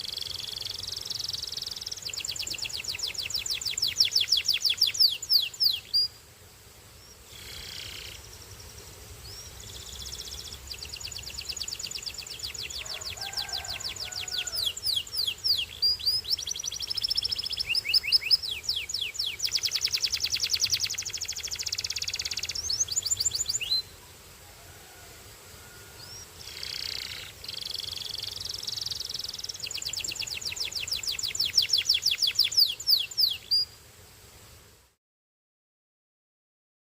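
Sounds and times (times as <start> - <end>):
canary singing trills: 0.0 - 6.2, 9.3 - 23.9, 26.0 - 33.8.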